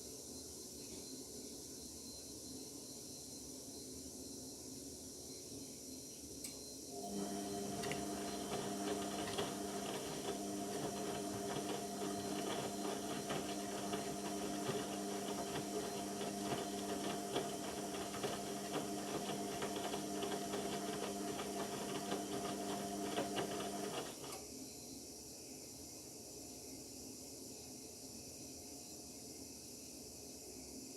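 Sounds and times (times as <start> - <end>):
washing machine hum: 6.9 - 24.4
water splashing inside machine: 7.1 - 23.9.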